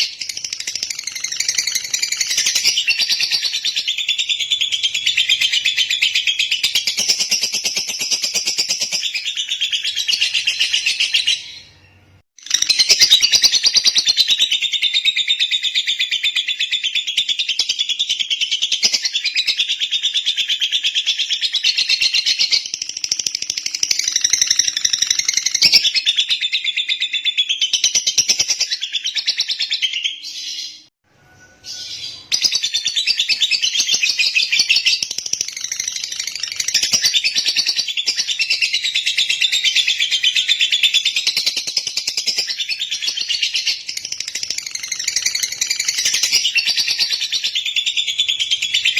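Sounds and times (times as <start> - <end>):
lovebird chattering and chirping: 0.0 - 11.6, 31.7 - 48.9.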